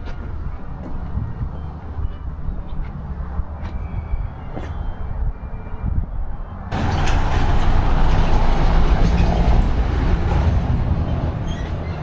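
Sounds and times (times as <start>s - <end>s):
road vehicle rumble: 0.0s - 12.0s.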